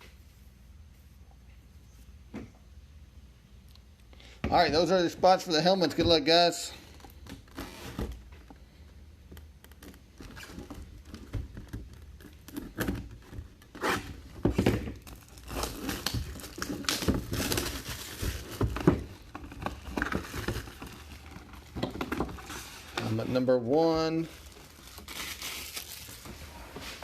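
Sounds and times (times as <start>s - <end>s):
box packaging crinkling and tearing: 9.7s - 27.0s.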